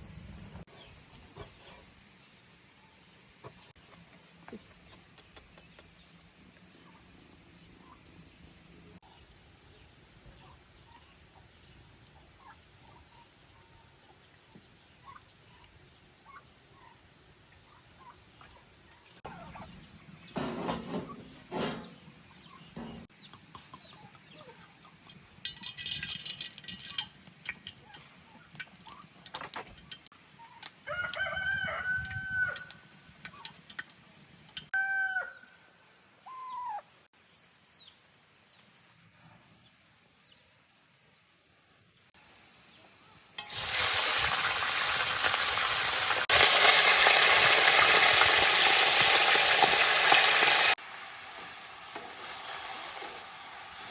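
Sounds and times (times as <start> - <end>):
chickens clucking: 10.2 - 25.6
rooster crowing: 30.8 - 32.8, 34.8 - 35.6.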